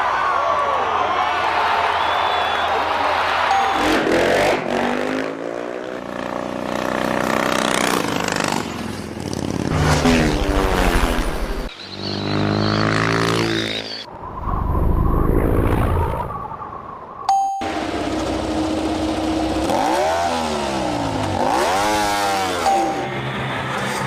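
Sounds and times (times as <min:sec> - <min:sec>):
motorcycle engines revving: 0:03.5 - 0:14.1, 0:17.6 - 0:24.0.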